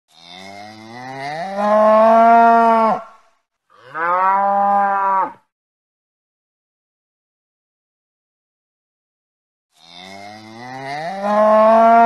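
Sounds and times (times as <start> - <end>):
cattle mooing: 0.1 - 3.0, 3.8 - 5.4, 9.8 - 12.0.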